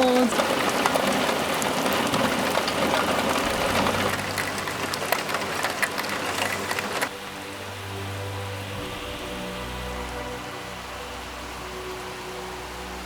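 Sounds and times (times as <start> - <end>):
heavy rain pelting down: 0.0 - 13.0.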